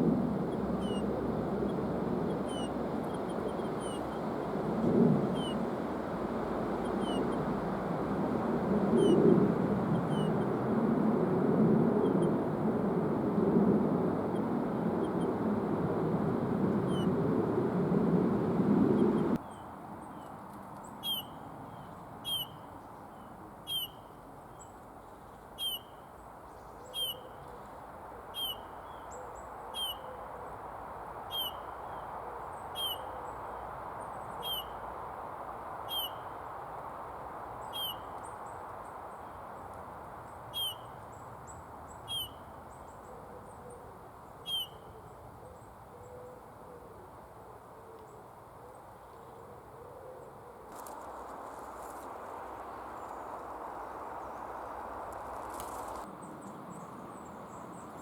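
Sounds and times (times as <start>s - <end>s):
bird piping whistled call: 34.4s - 34.7s, 35.9s - 36.2s, 37.7s - 38.1s, 40.5s - 40.9s, 42.1s - 42.5s, 44.4s - 44.9s.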